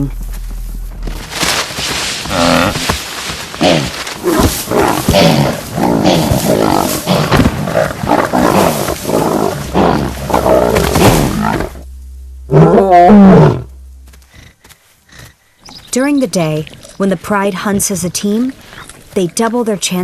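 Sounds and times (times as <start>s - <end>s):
lions growling and roaring: 3.6s - 11.8s, 12.5s - 13.8s.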